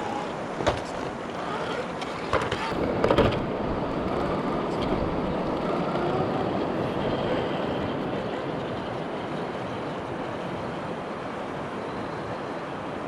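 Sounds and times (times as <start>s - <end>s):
rc car motor whining: 0.0s - 3.4s
knocks: 0.6s - 1.2s.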